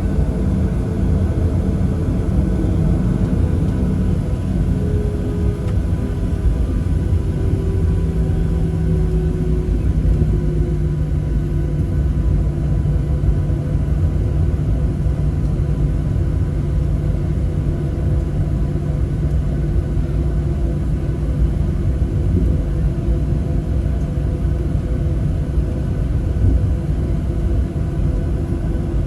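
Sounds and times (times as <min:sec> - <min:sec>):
faint whining tones: 0:00.0 - 0:11.0
jet engines rumbling in cabin: 0:00.0 - 0:29.0.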